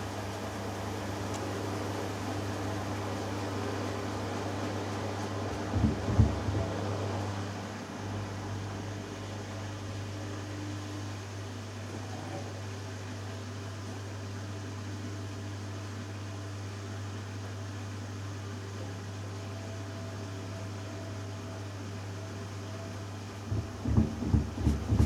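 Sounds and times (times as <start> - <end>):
washing machine spinning: 2.5 - 8.3, 23.3 - 25.0
loud irregular knocks: 5.7 - 6.7, 23.5 - 25.0.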